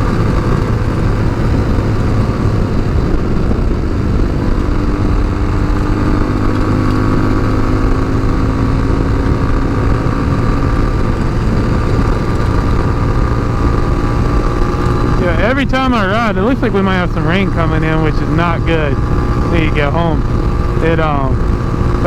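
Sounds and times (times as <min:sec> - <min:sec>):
motorcycle engine cruising: 0:00.0 - 0:22.0
wind rumble on microphone: 0:00.0 - 0:22.0.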